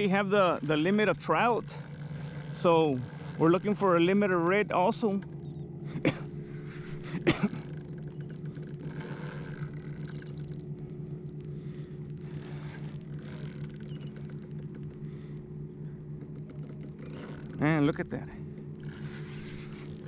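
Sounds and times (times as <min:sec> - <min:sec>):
low engine hum: 0:00.0 - 0:20.0
faint clicks: 0:01.7 - 0:05.6.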